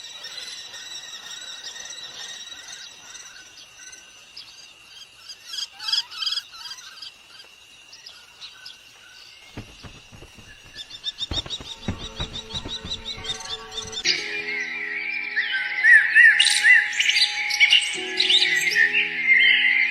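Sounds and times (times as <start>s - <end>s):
small birds chirping: 0.0s - 14.8s
low knocks: 9.5s - 14.1s.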